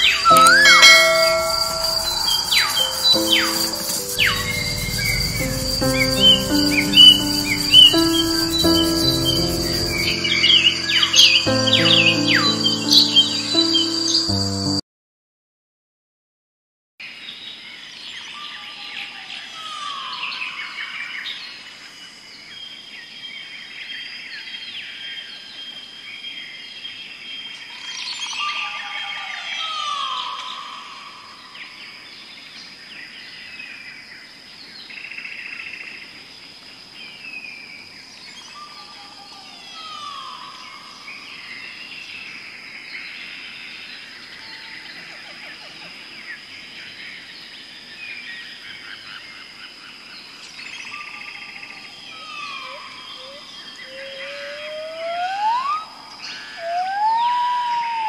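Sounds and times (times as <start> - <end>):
falling whistles: 0.0 - 13.4, 52.6 - 58.0
upward gliding whistle: 0.0 - 13.9, 52.7 - 58.0
birds chirping and trilling: 0.0 - 14.4
steady high tone: 0.0 - 14.8.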